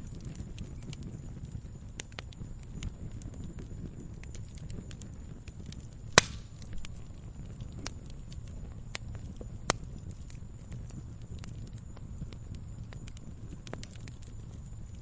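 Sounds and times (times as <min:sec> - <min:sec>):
firewood burning and crackling: 0:00.0 - 0:15.0
loud sharp pops: 0:06.1 - 0:06.7.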